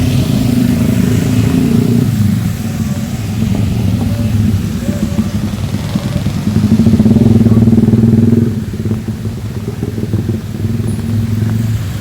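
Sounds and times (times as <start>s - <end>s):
motorcycle engine passing: 0.0s - 12.0s
rain hissing: 0.0s - 12.0s.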